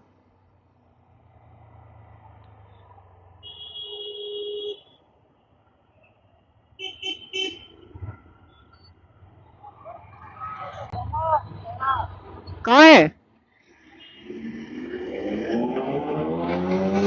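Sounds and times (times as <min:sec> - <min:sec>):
engine and road noise: 0:00.0 - 0:17.0
vehicle horn honking: 0:03.4 - 0:05.0, 0:06.8 - 0:07.9.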